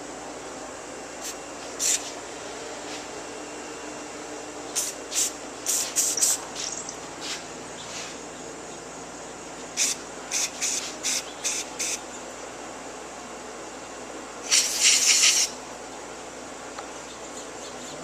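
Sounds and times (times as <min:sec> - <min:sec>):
aerosol spray hissing: 0:04.8 - 0:06.4, 0:09.8 - 0:12.0, 0:14.5 - 0:15.5.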